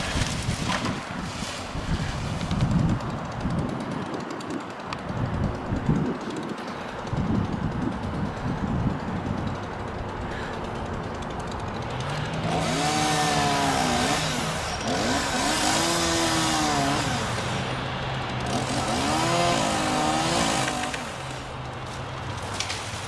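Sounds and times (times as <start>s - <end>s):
excavator diesel engine humming: 6.6s - 23.0s
hydraulics whining under load: 6.6s - 23.0s.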